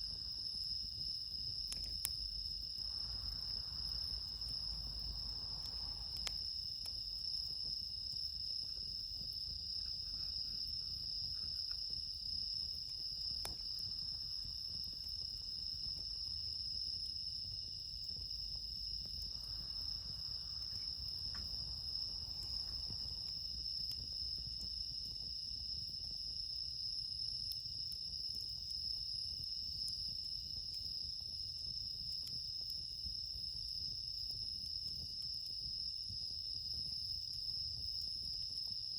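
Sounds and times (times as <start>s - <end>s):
crickets and night insects chirring: 0.0s - 38.9s
faint ticks: 2.8s - 7.8s, 8.6s - 12.0s, 12.8s - 16.1s, 19.0s - 25.3s.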